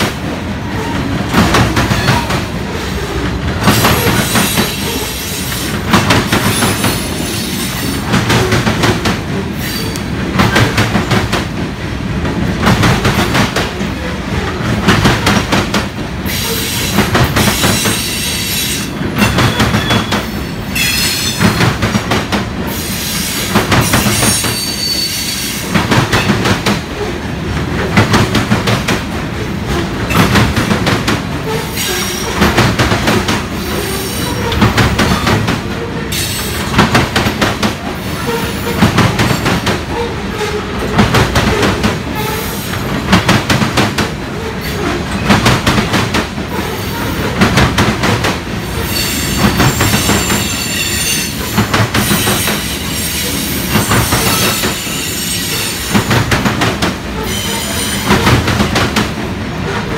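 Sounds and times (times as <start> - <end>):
train wheels clacking on rail joints: 0.0 - 59.9
high wheel squeal: 17.7 - 21.4, 24.2 - 25.6, 48.8 - 51.5, 52.1 - 56.0.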